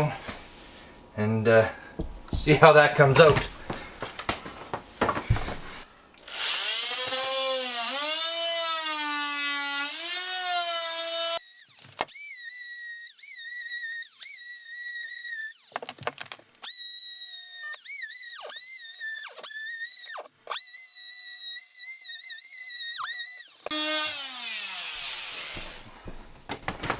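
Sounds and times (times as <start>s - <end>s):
oscillating multi-tool cutting tile: 6.3s - 15.8s, 16.6s - 25.8s.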